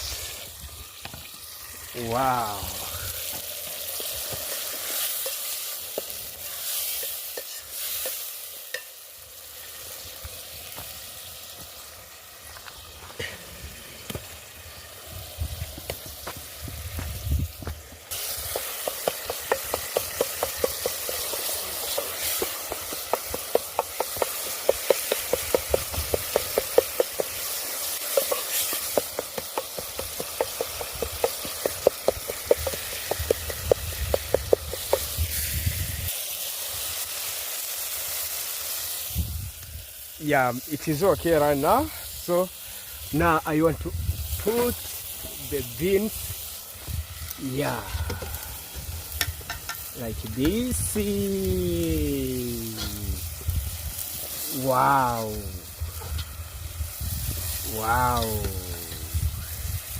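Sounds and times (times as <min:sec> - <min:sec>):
food sizzling in a pot: 0:00.0 - 0:59.9.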